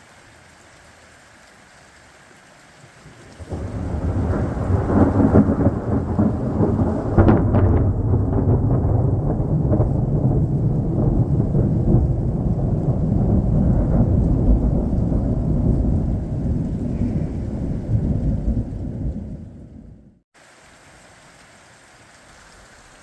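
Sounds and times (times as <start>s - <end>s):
rain falling: 0.0s - 23.0s
rolling thunder: 3.4s - 20.2s.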